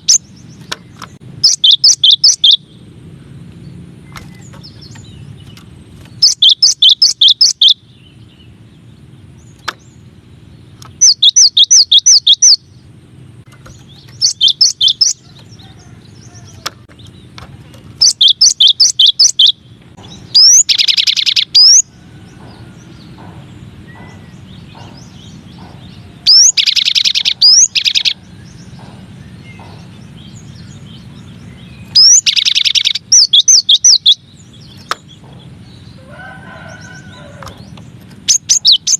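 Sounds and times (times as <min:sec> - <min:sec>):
bird singing high sharp notes: 0:01.4 - 0:02.8, 0:06.2 - 0:08.5, 0:10.9 - 0:12.7, 0:13.6 - 0:15.3, 0:18.0 - 0:21.9, 0:23.9 - 0:28.8, 0:29.4 - 0:35.2.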